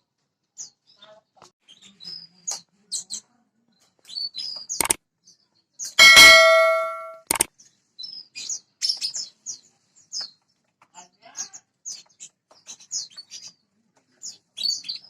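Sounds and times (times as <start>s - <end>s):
loud metallic clang: 6.0s - 7.5s
sharp clicks: 6.0s - 7.5s
small birds chirping: 7.4s - 15.0s.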